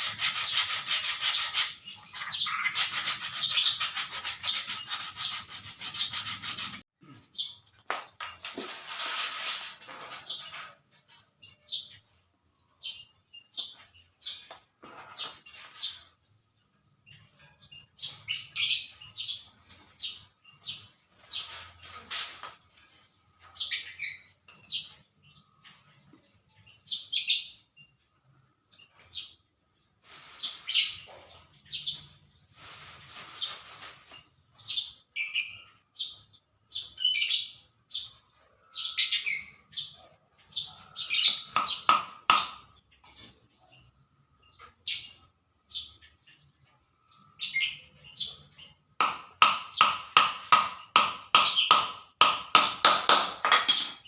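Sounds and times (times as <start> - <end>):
rubbing or scraping: 0.0 - 6.9, 8.2 - 11.8, 14.8 - 16.2, 21.0 - 23.2, 31.8 - 34.6
small birds chirping: 0.0 - 8.4, 9.9 - 54.0.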